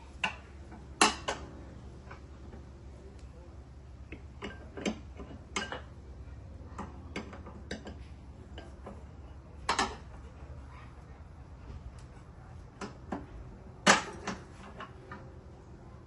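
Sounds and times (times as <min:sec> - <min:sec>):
steady low hum: 0:00.0 - 0:16.0
hand tools clicking and knocking: 0:00.2 - 0:02.6, 0:04.0 - 0:05.9, 0:06.7 - 0:10.2, 0:12.8 - 0:15.3.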